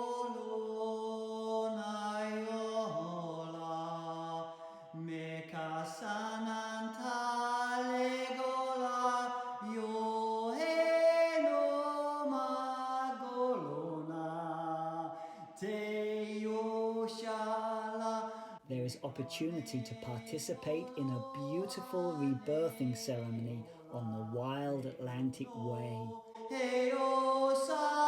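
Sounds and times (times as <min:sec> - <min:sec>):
voice chanting held notes: 0:18.6 - 0:26.4.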